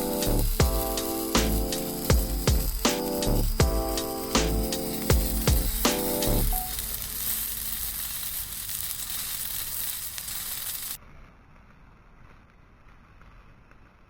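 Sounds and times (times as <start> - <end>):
offal sizzling in a skillet: 0.0 - 11.0.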